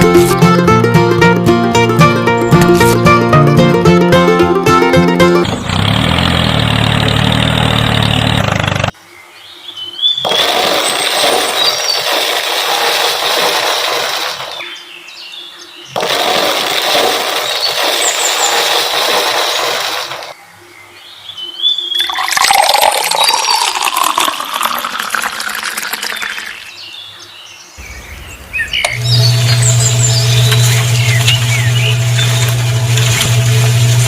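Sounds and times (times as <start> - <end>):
rushing splashing water: 10.3 - 14.6, 16.0 - 20.3.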